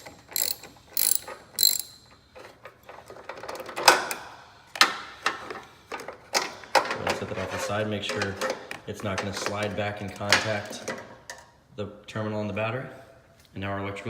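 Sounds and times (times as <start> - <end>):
socket ratchet clicking: 0.0 - 2.1
sharp clicks and knocks: 0.0 - 2.2.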